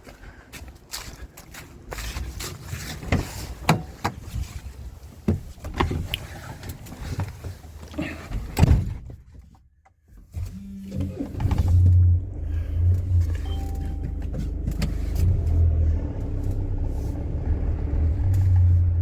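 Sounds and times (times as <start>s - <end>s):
vehicle engine humming: 10.8s - 19.0s.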